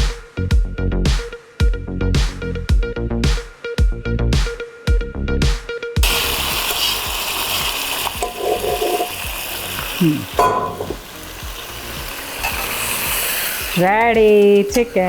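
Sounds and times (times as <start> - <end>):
hot oil sizzling: 6.0 - 15.0.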